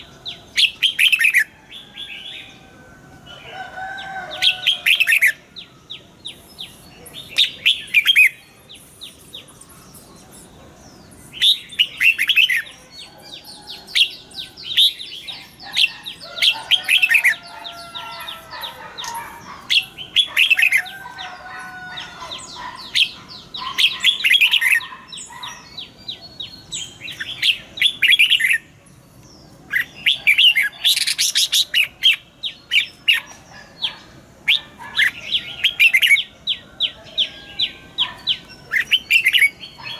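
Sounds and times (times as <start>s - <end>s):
bird singing chattering notes: 4.3s - 13.2s, 22.2s - 39.9s.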